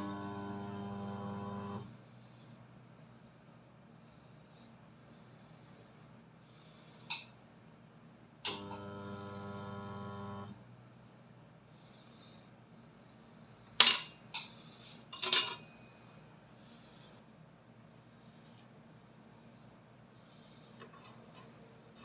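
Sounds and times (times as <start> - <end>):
transformer humming: 0.0 - 1.9.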